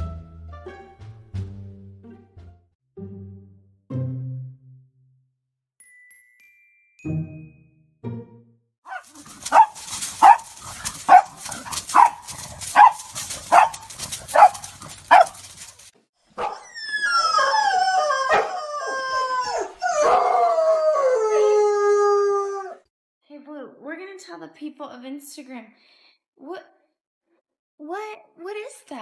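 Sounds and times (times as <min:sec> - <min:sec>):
dog howling: 0:08.9 - 0:15.8, 0:16.5 - 0:22.8
dog barking: 0:08.9 - 0:16.7.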